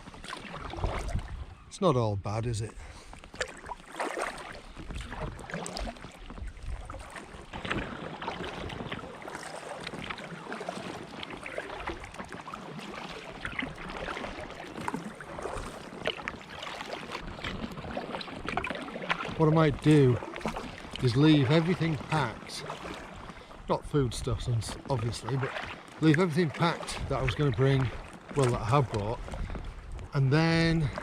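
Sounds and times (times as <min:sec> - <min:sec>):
paddle strokes splashing: 0:00.0 - 0:01.6, 0:02.6 - 0:31.0
wind rumble on microphone: 0:00.0 - 0:01.7, 0:04.7 - 0:09.1, 0:26.9 - 0:31.0.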